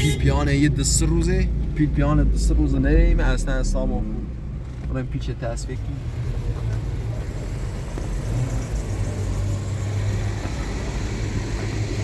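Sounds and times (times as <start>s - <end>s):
vehicle engine and road drone: 0.0s - 12.0s.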